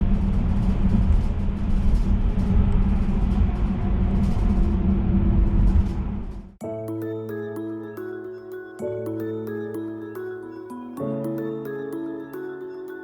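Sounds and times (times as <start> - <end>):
low rumbling noise: 0.0 - 6.6
faint music: 6.6 - 13.0
soft music with mallet notes: 6.6 - 13.0.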